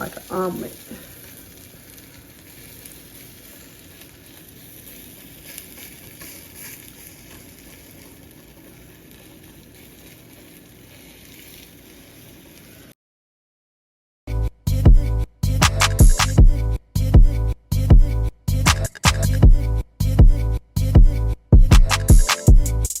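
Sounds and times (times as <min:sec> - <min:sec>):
egg sizzling in a frying pan: 0:00.0 - 0:13.0.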